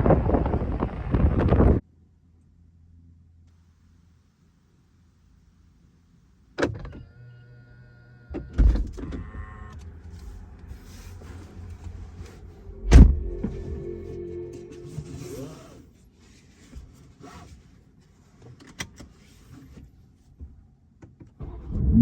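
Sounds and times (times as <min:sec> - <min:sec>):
car door shutting: 0:12.7 - 0:13.8
thud: 0:12.8 - 0:13.5.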